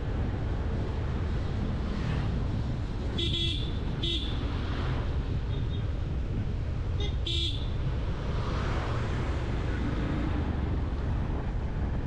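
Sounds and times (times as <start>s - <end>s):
road and traffic noise: 0.0s - 12.0s
vehicle horn toots: 3.2s - 4.3s, 7.0s - 7.6s.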